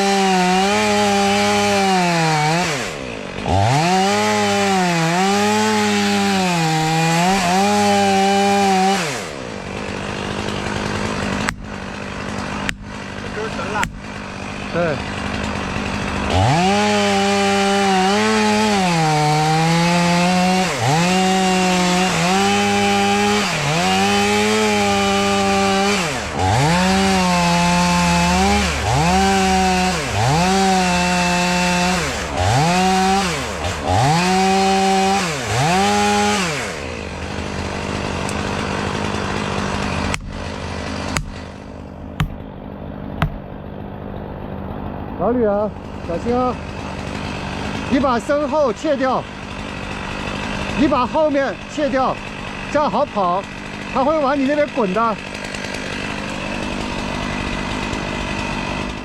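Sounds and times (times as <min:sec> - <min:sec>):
chainsaw cutting wood: 0:00.0 - 0:59.0
chainsaw idling: 0:00.0 - 0:59.0
sharp knocks: 0:13.8 - 0:14.1, 0:40.1 - 0:40.4, 0:41.1 - 0:41.5, 0:42.2 - 0:42.6, 0:43.2 - 0:43.5.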